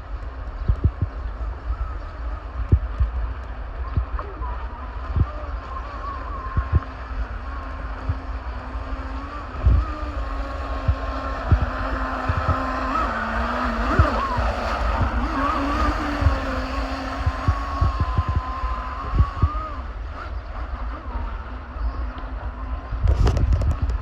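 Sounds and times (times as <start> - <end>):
model boat motor whine: 0.0 - 24.0
wind thumps on microphone: 0.6 - 1.2, 2.6 - 4.4, 9.6 - 9.9, 10.9 - 12.6, 23.0 - 24.0.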